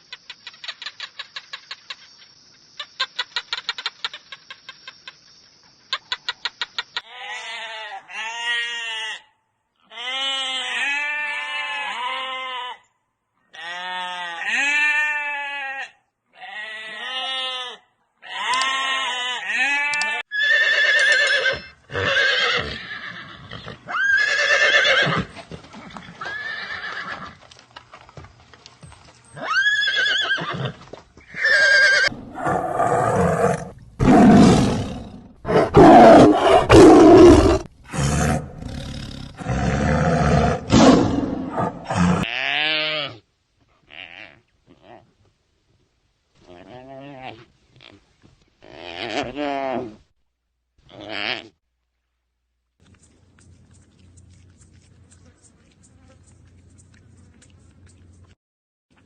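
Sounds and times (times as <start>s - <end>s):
goat bleating: 13.6s - 23.2s
animal roaring: 32.1s - 42.3s.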